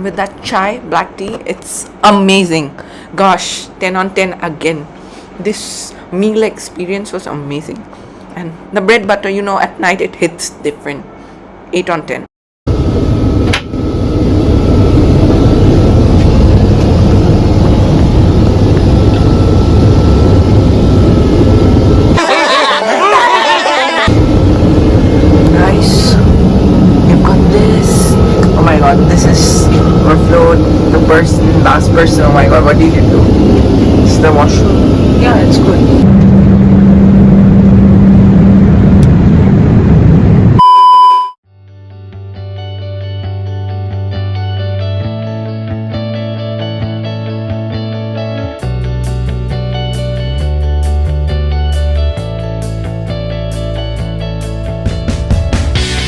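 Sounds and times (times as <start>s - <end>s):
faint steady whine: 12.7s - 22.2s, 24.1s - 40.8s
low hum: 12.7s - 22.2s, 24.1s - 41.4s
airplane cabin roar: 12.7s - 40.6s
short electronic beep: 40.6s - 41.4s
music with deep bass: 44.4s - 56.0s.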